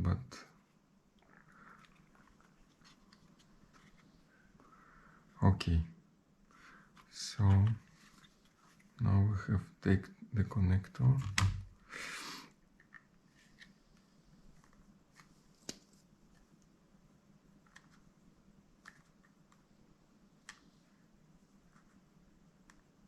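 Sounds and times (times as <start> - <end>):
small clicks handling laptop parts: 17.6 - 18.0, 18.8 - 19.6.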